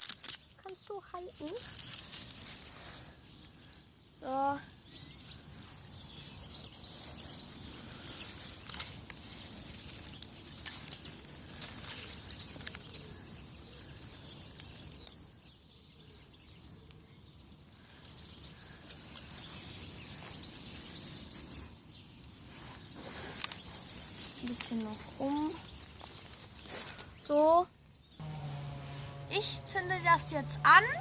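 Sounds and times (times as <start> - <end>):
twigs snapping: 0.0 - 3.1, 6.4 - 15.3, 23.2 - 27.2
dry plants rustling and crackling: 0.0 - 27.5, 28.2 - 31.0.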